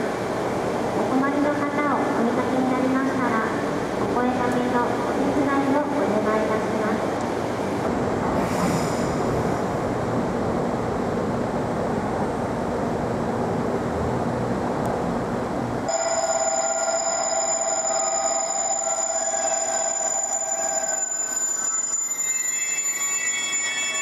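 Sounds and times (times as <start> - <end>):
electronic ringing tone: 15.9 - 24.0.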